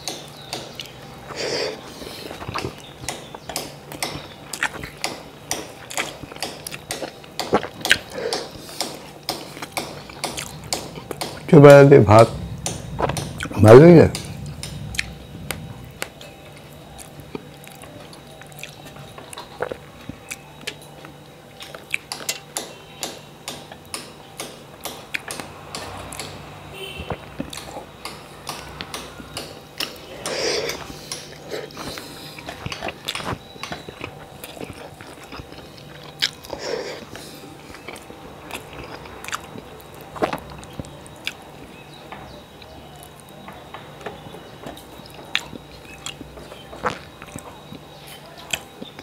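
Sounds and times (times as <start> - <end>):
faint steady hum: 0.0 - 49.0
man chewing and smacking: 0.3 - 11.6, 14.2 - 22.6, 25.0 - 25.5, 27.0 - 28.2, 29.8 - 41.8, 44.7 - 49.0.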